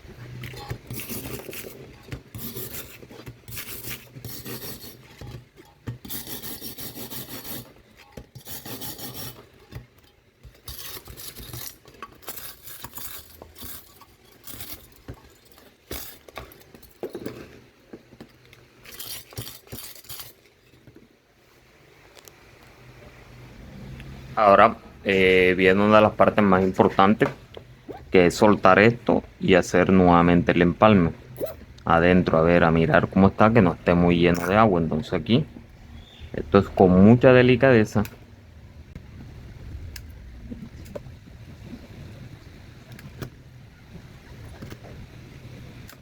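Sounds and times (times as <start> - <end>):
hand scraping metal: 0.2 - 17.6, 18.8 - 20.8.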